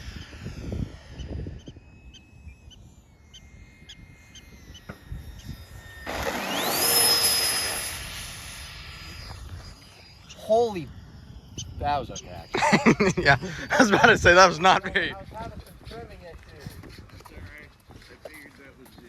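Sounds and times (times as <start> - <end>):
model airplane motor whining: 0.0 - 18.4
rush of passing plane: 0.0 - 18.9.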